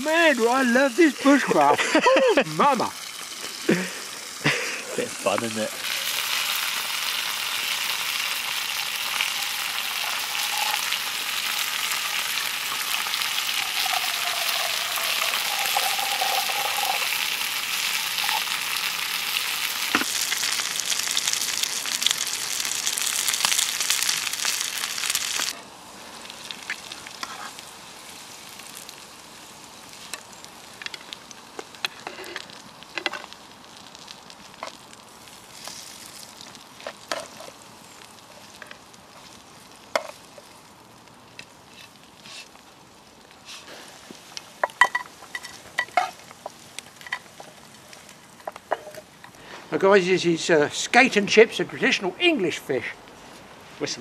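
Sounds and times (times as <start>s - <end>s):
food frying in oil: 0.0s - 49.2s
oil pops and crackles: 5.3s - 25.6s, 26.2s - 27.7s, 28.3s - 43.4s, 44.0s - 49.4s.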